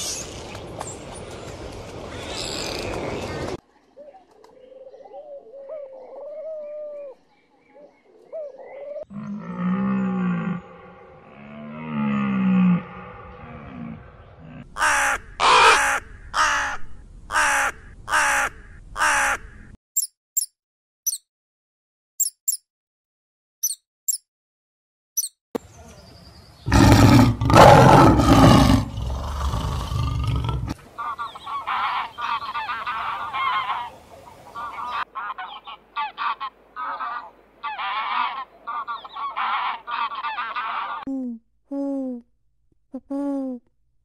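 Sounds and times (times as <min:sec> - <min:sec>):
goose honking: 0:34.6 - 0:41.0.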